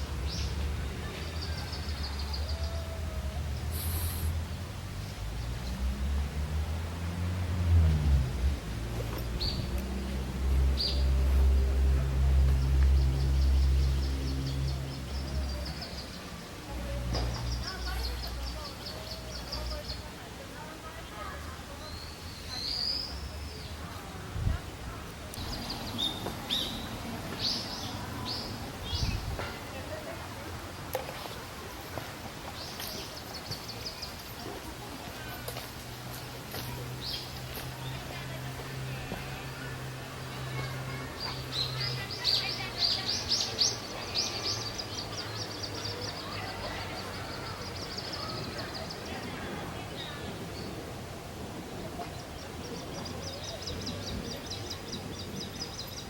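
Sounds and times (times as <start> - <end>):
outdoor hiss: 3.4 - 5.8.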